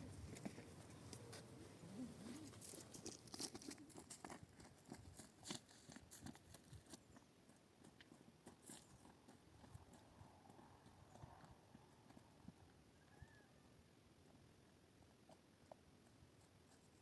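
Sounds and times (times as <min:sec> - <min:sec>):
faint crunching and clicking: 0:00.0 - 0:12.6.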